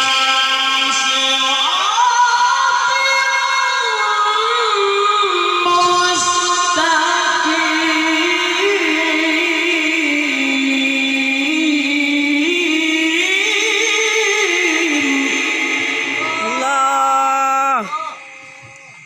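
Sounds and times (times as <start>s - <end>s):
person chanting melismatically: 5.6s - 19.0s.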